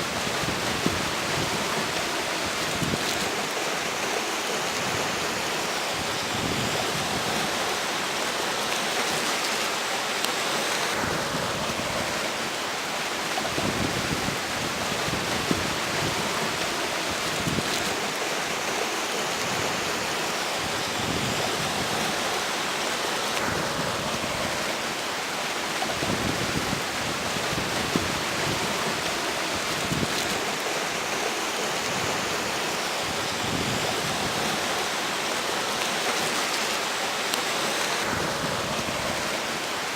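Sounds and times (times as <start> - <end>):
river water rushing: 0.0 - 39.9
wind buffeting microphone: 13.4 - 18.2, 25.8 - 30.6.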